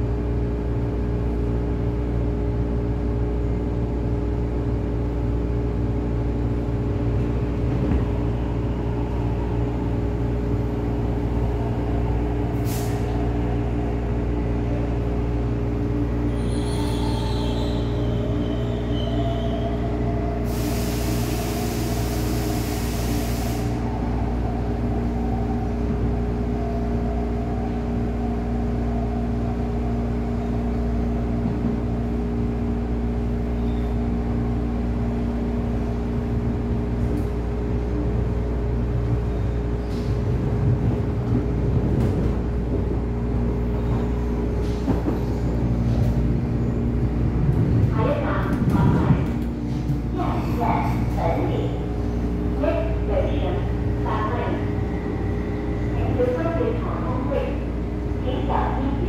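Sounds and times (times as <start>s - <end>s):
train running rumble: 0.0s - 59.0s
hiss of air: 12.6s - 13.2s, 20.4s - 23.9s.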